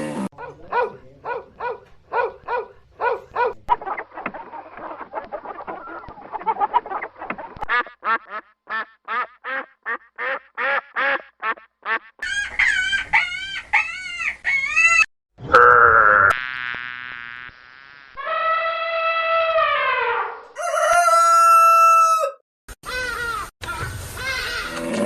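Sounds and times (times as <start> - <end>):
loud held poultry call: 7.7 - 15.1, 18.2 - 25.0.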